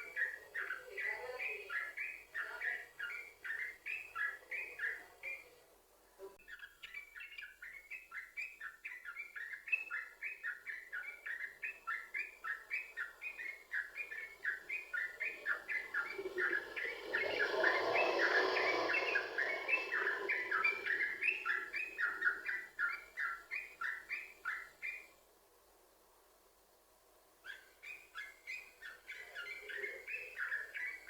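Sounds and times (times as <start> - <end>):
bulbul singing fast chattering runs: 13.6 - 23.3.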